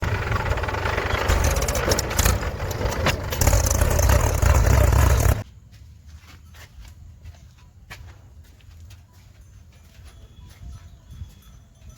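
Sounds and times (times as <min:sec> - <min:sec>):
diesel engine running loud: 0:00.0 - 0:05.4.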